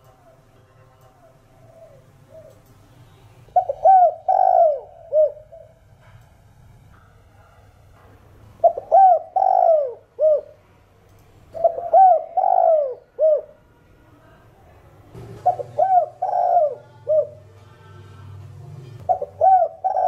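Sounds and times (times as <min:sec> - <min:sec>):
dove cooing: 0:01.1 - 0:02.7, 0:03.5 - 0:05.8, 0:08.6 - 0:10.6, 0:11.5 - 0:13.6, 0:15.4 - 0:18.0, 0:19.0 - 0:20.0.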